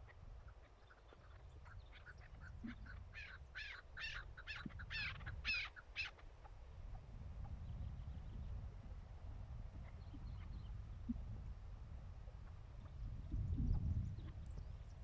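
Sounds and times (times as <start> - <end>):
partridge clucking calls: 0.0 - 6.3.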